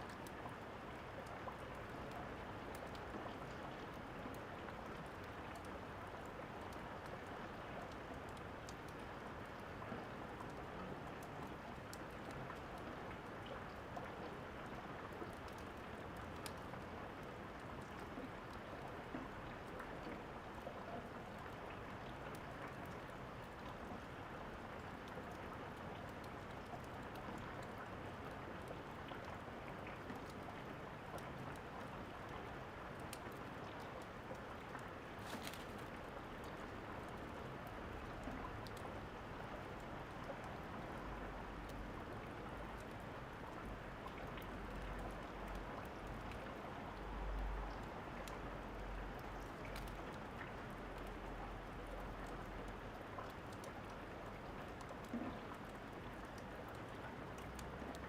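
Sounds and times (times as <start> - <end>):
steady rain falling: 0.0 - 58.0
fireplace crackling: 35.2 - 35.9.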